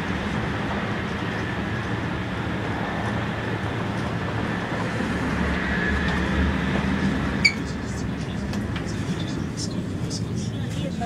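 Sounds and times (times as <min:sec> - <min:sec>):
high-speed train running: 0:00.0 - 0:11.0.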